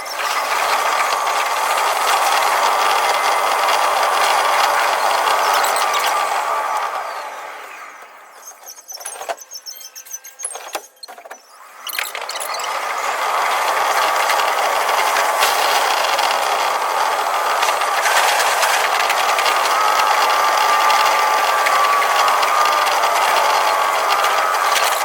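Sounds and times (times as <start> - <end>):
electric train running: 0.0 - 25.0
scattered clicks: 13.6 - 25.0.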